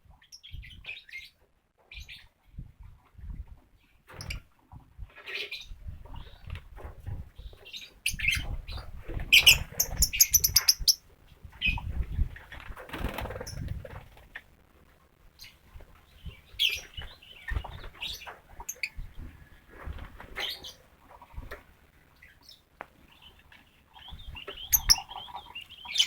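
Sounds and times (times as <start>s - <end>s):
lovebirds chirping: 7.4s - 11.0s, 15.4s - 19.6s, 22.2s - 26.0s
wing flutters: 11.6s - 14.4s.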